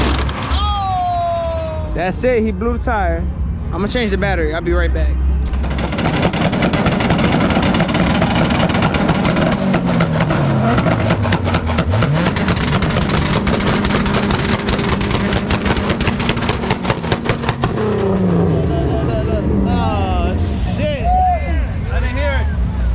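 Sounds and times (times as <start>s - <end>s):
car engine revving with crackle: 0.0s - 0.6s, 5.4s - 19.4s.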